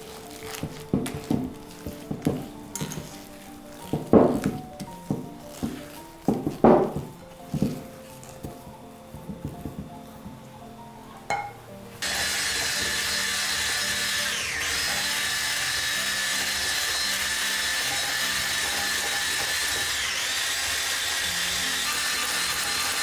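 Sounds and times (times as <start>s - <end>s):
soft background music: 0.0s - 23.0s
kitchen appliance motor whining: 12.0s - 23.0s.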